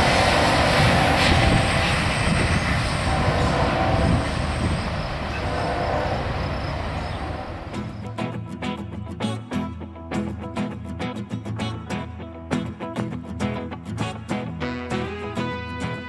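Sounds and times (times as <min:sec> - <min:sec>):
train wheels rolling on rails: 0:00.0 - 0:08.1.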